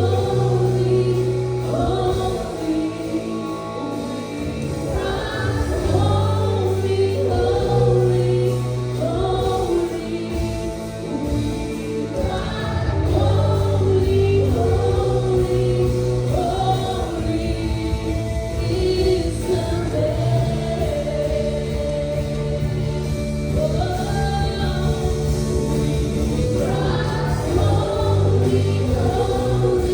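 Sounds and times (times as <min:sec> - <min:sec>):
band with sustained bass: 0:00.0 - 0:29.9
choir singing: 0:00.0 - 0:29.9.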